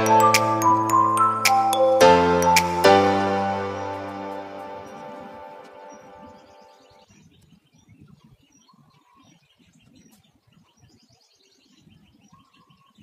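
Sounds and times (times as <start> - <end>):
background music: 0.0 - 7.0
bird chirping: 0.0 - 13.0.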